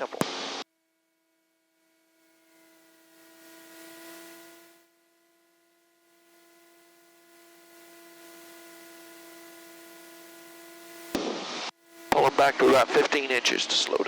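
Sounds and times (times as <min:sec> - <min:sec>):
electrical hum on intercom: 0:00.0 - 0:00.6, 0:06.3 - 0:14.0.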